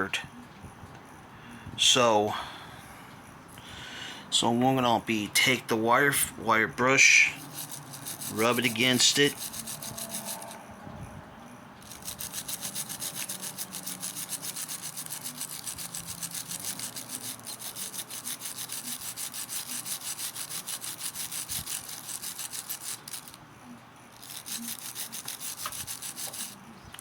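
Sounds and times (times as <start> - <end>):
wire brush scrubbing metal: 6.9 - 10.6, 11.8 - 23.4, 24.1 - 27.0.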